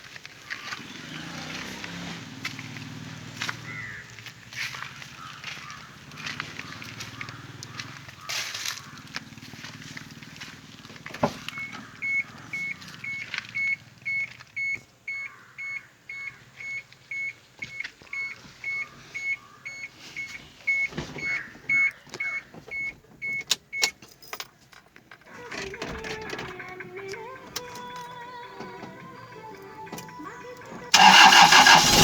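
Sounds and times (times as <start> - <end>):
electronic warning beeper: 11.5 - 22.9.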